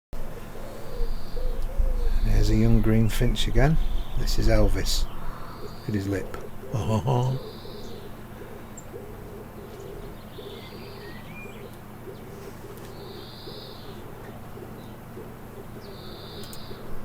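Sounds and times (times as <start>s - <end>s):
wood pigeon cooing: 0.2s - 17.0s
greenfinch buzzy wheezing calls: 3.6s - 8.2s.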